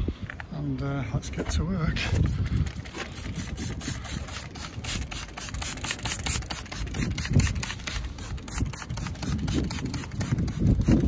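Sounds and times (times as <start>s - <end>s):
wind rumbling on microphone: 0.0s - 11.0s
spray bottle hissing bursts: 2.7s - 11.0s.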